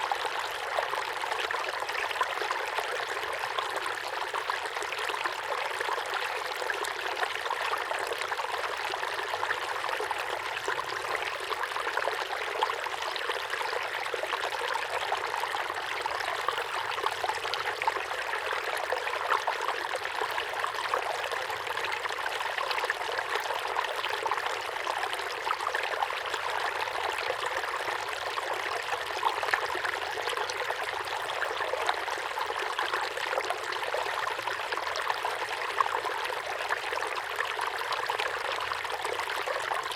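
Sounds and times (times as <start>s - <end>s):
small waterfall pouring into pond: 0.0s - 39.9s.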